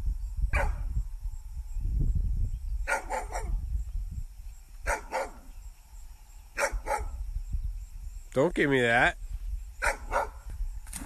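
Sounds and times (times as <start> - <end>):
dog barking: 0.5 - 0.8, 2.9 - 3.6, 4.8 - 5.5, 6.6 - 7.2, 9.8 - 10.4.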